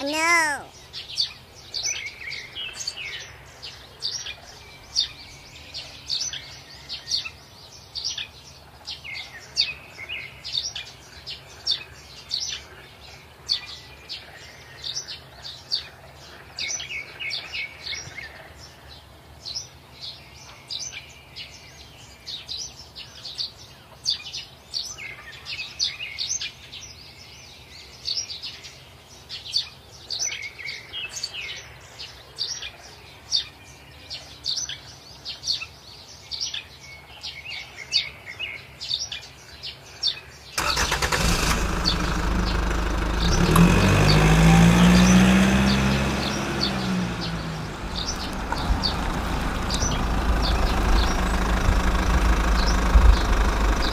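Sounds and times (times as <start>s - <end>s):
small birds chirping: 0.0s - 53.9s
falling bird calls: 39.0s - 53.9s.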